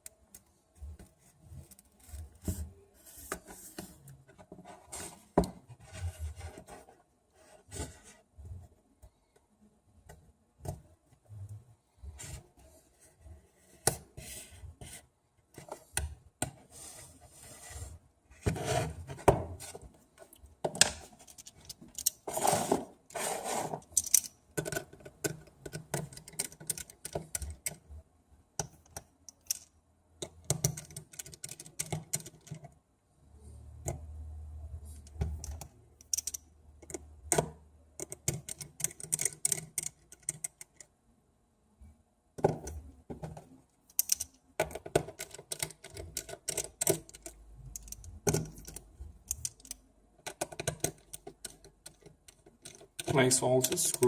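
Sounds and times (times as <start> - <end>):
tools clicking and tapping: 23.8 - 27.8, 28.6 - 32.7, 35.0 - 40.9, 42.4 - 54.0.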